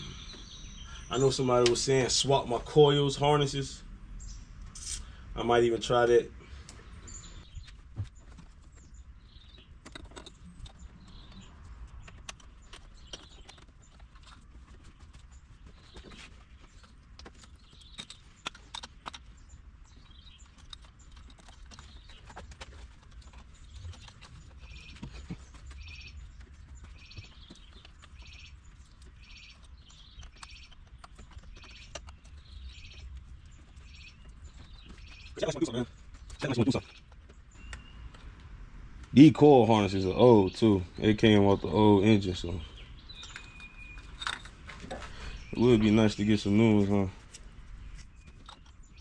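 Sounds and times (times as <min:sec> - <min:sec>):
bird chirping: 0:00.0 - 0:49.0
tools clicking and knocking: 0:09.5 - 0:10.8.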